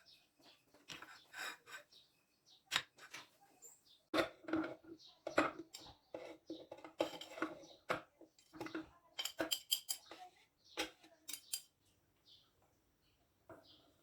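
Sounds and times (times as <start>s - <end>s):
utensils and dishes clinking: 4.1s - 11.8s.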